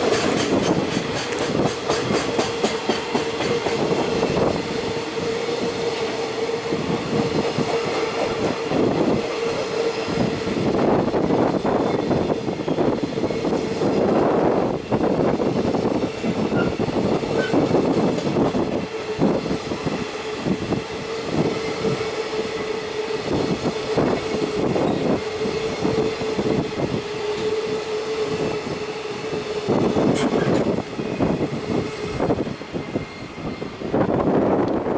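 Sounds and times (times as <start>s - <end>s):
freight train wheels clattering: 0.0s - 14.3s.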